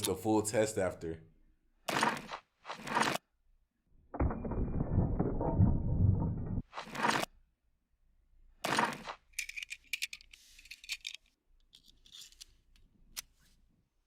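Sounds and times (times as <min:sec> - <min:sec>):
metallic clicks of pistol handling: 0:09.4 - 0:13.3.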